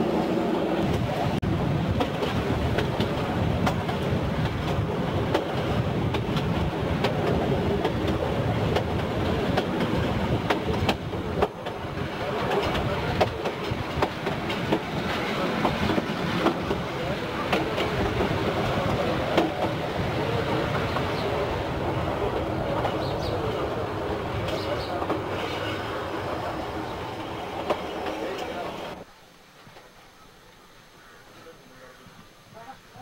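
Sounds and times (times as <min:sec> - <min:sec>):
train rumble: 0:00.0 - 0:29.8
wheels clicking over rail joints: 0:01.9 - 0:25.7.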